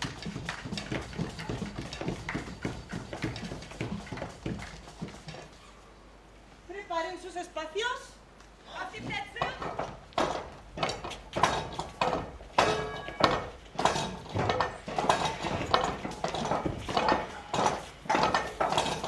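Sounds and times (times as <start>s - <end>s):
hard objects knocking and clinking: 9.0s - 19.0s.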